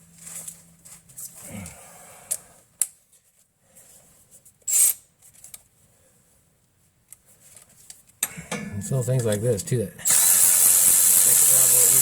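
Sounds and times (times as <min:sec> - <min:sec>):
ratchet wrench clicking: 0:10.1 - 0:12.0.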